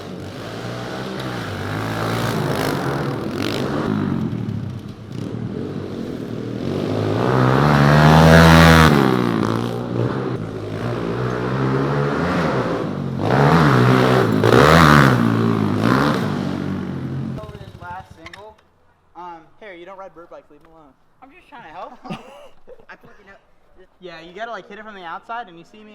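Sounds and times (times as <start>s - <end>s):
pit bike engines revving: 0.0s - 18.6s.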